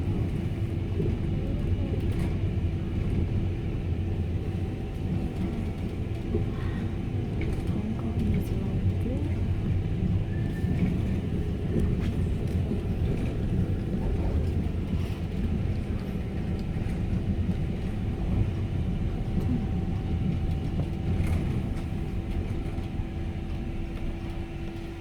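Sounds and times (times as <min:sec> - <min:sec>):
tram rumbling on rails: 0:00.0 - 0:25.0.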